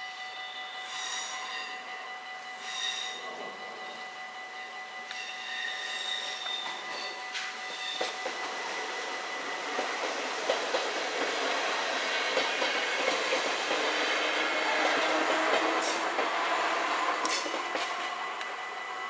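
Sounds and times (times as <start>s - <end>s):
level crossing warning bell: 0.0s - 10.5s
train wheels clacking over rail joints: 6.4s - 8.6s, 9.6s - 18.5s.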